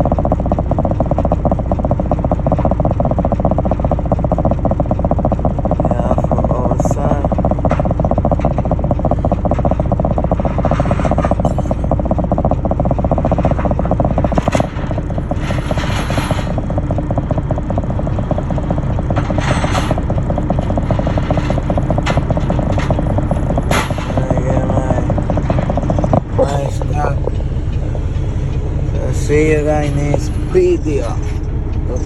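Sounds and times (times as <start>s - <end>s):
heavy truck engine rattling: 0.0s - 32.0s.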